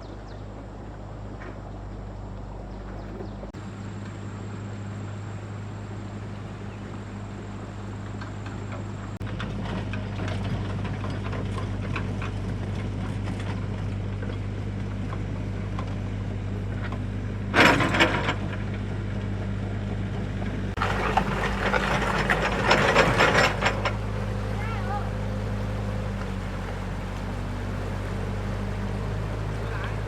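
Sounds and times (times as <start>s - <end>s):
loud clatter: 20.8s - 30.0s
motor humming: 20.8s - 30.0s.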